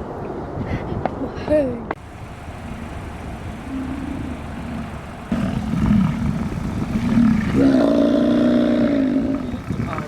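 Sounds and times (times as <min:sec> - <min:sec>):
bison bellowing: 0:02.2 - 0:10.0
bison grunting: 0:02.6 - 0:10.0.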